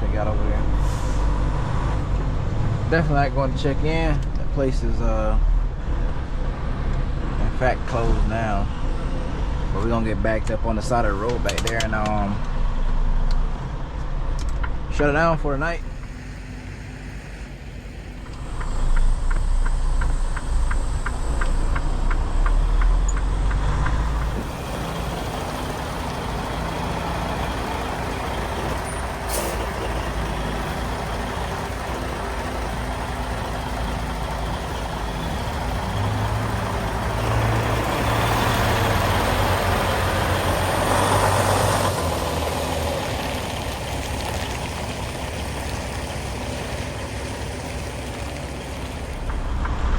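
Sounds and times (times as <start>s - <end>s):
diesel truck engine: 0.0s - 49.9s
air brakes hissing: 0.8s - 1.4s, 28.4s - 30.1s.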